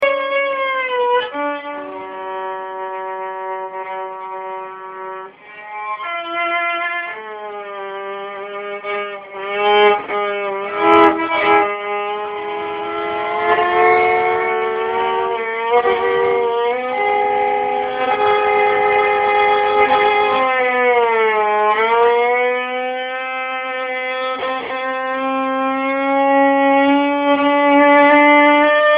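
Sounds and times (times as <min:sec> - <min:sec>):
solo violin with pitch glides: 0:00.0 - 0:28.9.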